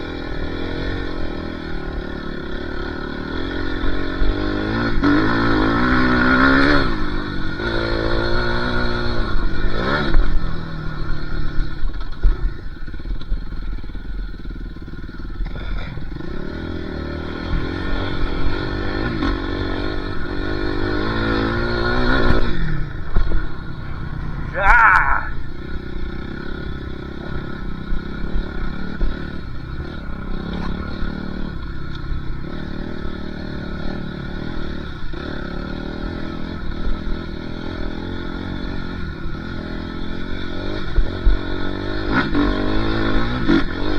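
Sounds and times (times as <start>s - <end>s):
dirt bike engine revving: 0.0s - 13.6s, 14.4s - 43.9s.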